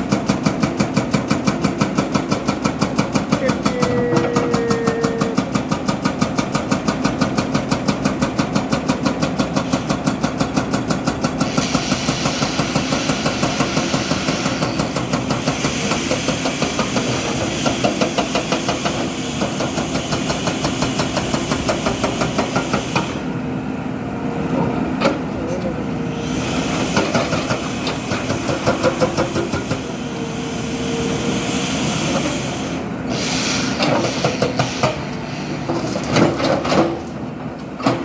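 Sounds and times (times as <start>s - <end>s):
diesel engine chugging: 0.0s - 38.0s
hiss: 11.2s - 23.3s, 26.1s - 35.6s.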